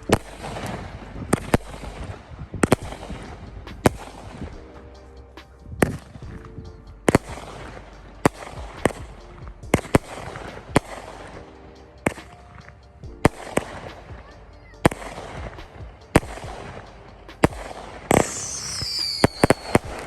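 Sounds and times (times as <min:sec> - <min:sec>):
firework bangs: 0:00.0 - 0:04.6, 0:17.4 - 0:20.0
firework crackling: 0:00.0 - 0:20.0.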